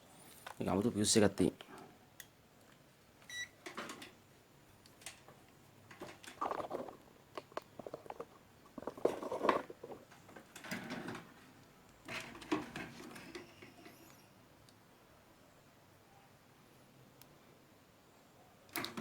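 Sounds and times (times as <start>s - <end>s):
small parts clicking and rustling: 4.8s - 14.2s.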